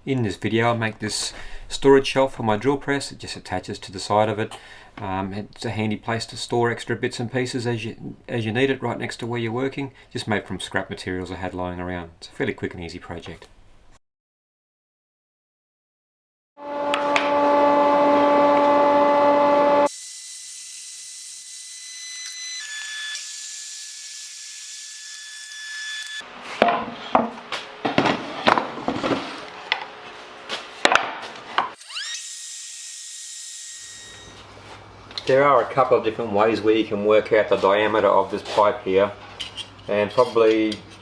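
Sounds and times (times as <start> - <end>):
power tool motor running: 24.7 - 26.2, 31.8 - 34.4
knocks and scraping on wood: 26.5 - 29.8.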